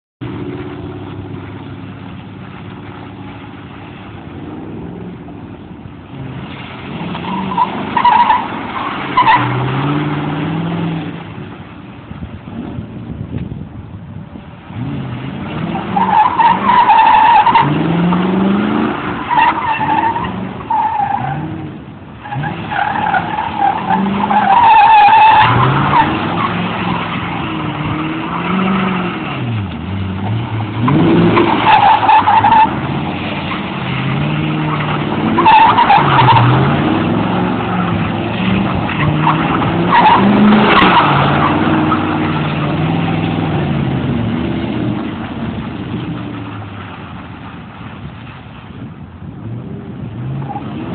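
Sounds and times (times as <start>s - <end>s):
car engine revving hard: 14.7s - 45.2s
tyres squealing: 22.2s - 43.6s.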